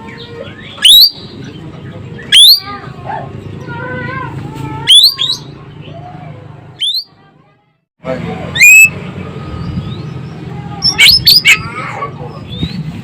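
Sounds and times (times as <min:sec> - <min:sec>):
bird whistled notes: 0:00.6 - 0:01.4, 0:02.3 - 0:02.7, 0:06.8 - 0:07.1, 0:08.6 - 0:09.0.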